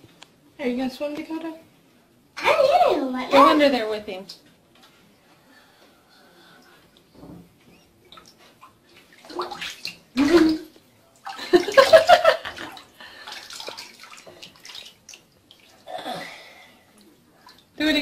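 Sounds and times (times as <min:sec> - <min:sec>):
water splashing in a bathtub: 0:08.0 - 0:18.0.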